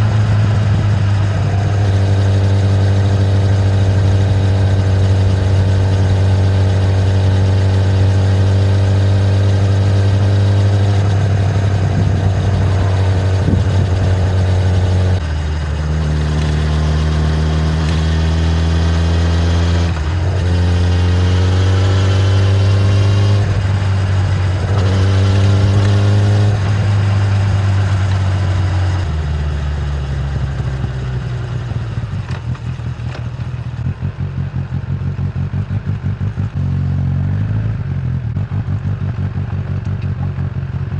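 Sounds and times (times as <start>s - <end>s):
motorcycle engine shifting gears: 0.0s - 40.9s.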